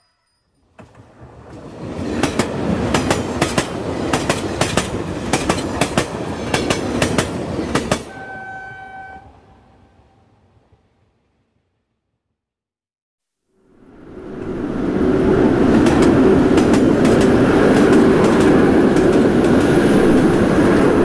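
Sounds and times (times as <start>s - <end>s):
train rumbling on rails: 0.6s - 11.6s, 13.9s - 21.0s
train horn blast: 8.1s - 10.2s.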